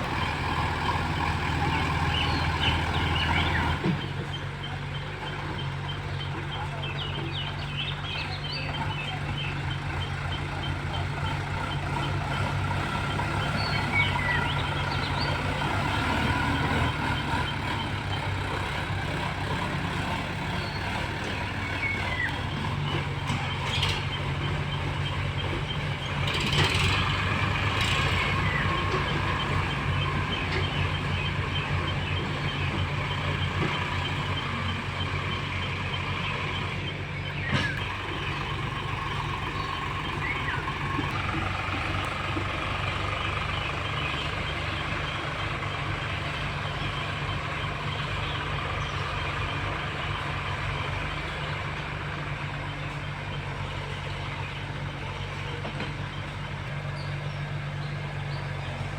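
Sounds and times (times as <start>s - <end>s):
diesel tractor engine idling: 0.0s - 58.9s.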